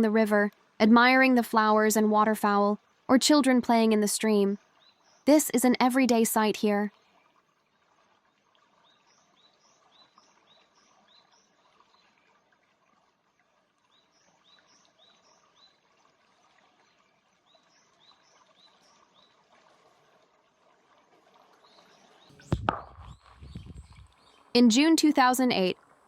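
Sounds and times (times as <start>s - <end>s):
stream flowing: 7.0s - 26.0s.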